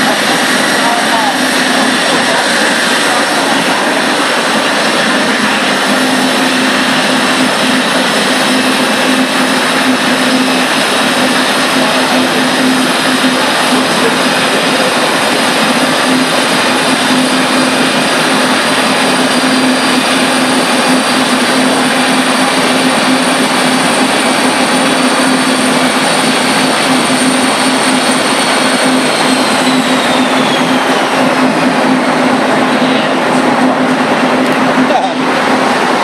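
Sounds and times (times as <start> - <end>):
high-pitched turbo whines: 0.0 - 36.0
motorcycle engine on dyno: 0.0 - 36.0.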